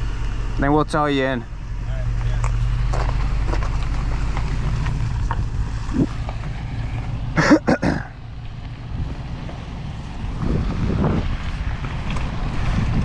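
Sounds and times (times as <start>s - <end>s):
bike rattles: 2.2s - 13.0s
wind buffeting microphone: 8.7s - 13.0s.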